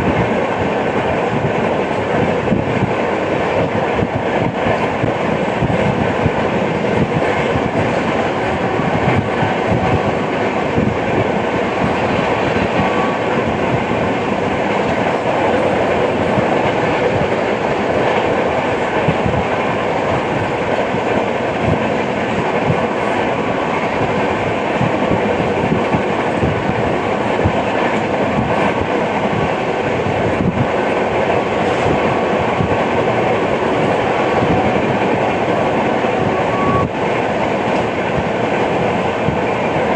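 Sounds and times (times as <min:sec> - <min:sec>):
clickety-clack over rail joints: 0:00.0 - 0:39.9
train wheels rumbling on track: 0:00.0 - 0:39.9.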